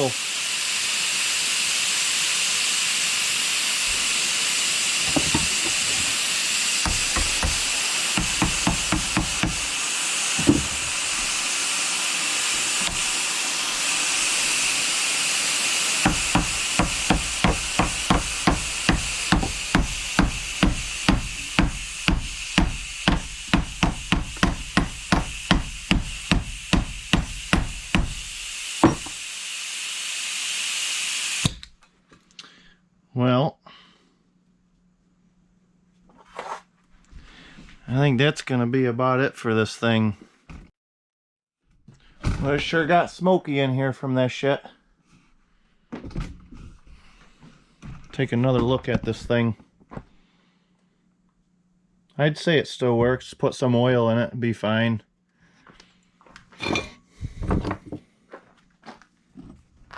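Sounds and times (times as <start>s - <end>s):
pneumatic angle grinder hissing: 0.0s - 31.6s, 56.6s - 57.0s
knocking inside grinder: 5.0s - 11.6s, 12.6s - 29.2s.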